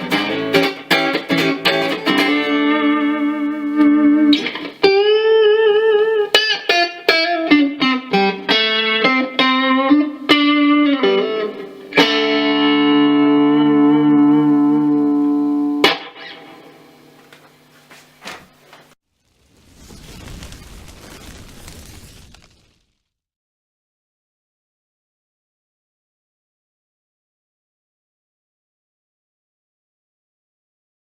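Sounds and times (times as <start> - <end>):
electric guitar playing: 0.0 - 17.1.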